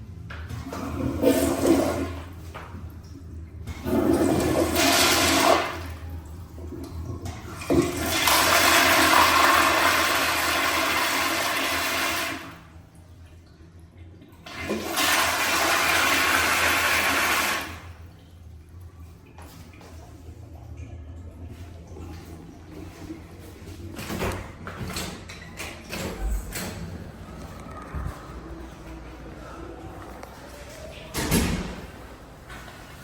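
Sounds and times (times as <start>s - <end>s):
toilet flush valve rush of water: 0.6s - 2.4s, 3.6s - 12.7s, 14.4s - 18.0s.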